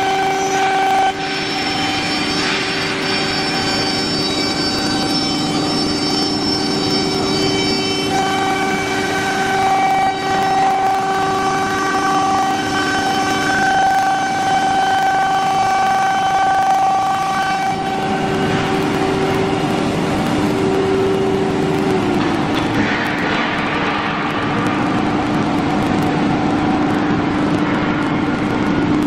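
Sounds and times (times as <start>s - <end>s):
wood router whining: 0.0s - 22.8s.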